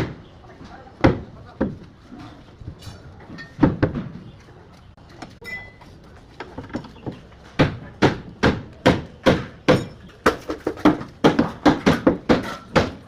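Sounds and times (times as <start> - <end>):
hammer striking shuttering: 7.6 - 13.0.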